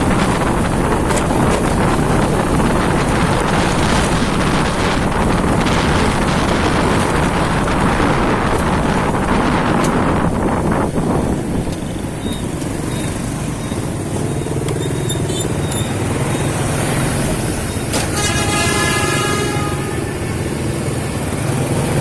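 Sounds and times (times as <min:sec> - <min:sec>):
wind buffeting microphone: 0:00.0 - 0:14.6
motorcycle engine running: 0:00.0 - 0:17.7.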